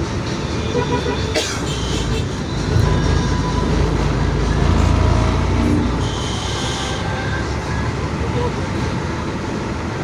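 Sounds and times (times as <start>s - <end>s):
heavy truck rumbling past: 2.3s - 9.5s.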